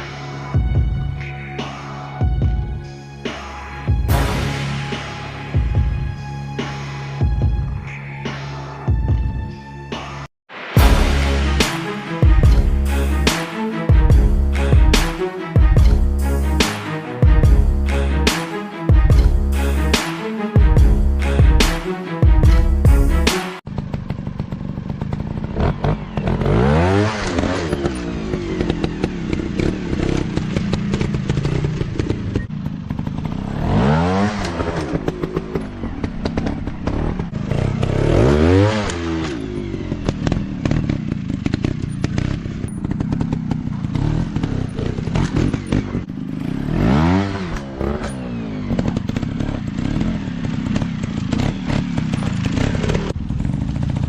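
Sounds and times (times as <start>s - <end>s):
dirt bike engine revving: 20.8s - 54.0s
engine clatter: 23.7s - 54.0s.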